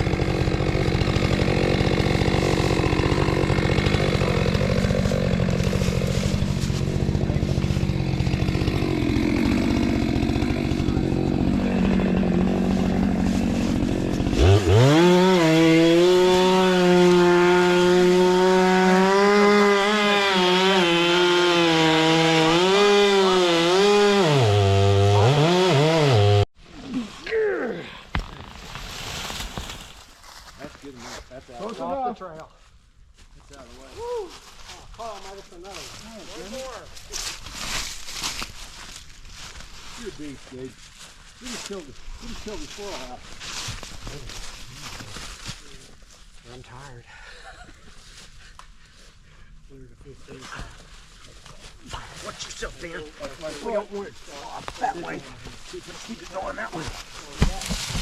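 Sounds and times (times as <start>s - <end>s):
chainsaw cutting through tree: 0.0s - 26.5s, 54.7s - 58.0s.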